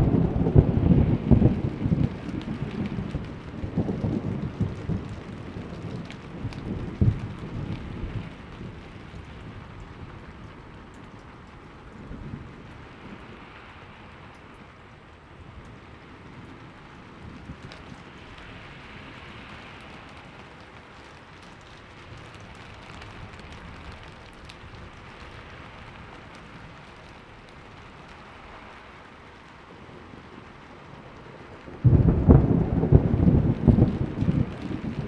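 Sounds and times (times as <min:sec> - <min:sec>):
thunder crack: 0:00.0 - 0:08.8, 0:31.7 - 0:35.0
steady rainfall: 0:00.0 - 0:35.0.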